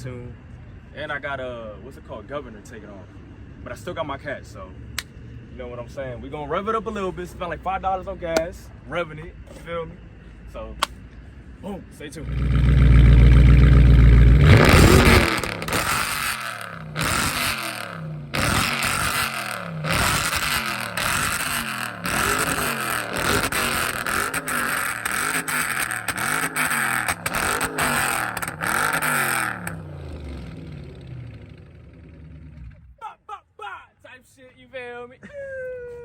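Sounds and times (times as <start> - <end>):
car engine revving: 12.2 - 33.0
exhaust pops and crackles: 12.3 - 32.9.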